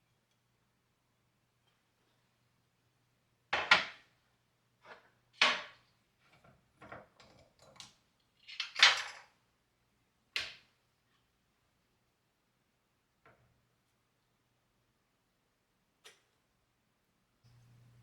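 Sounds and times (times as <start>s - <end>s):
faint steady hum: 17.4s - 18.0s.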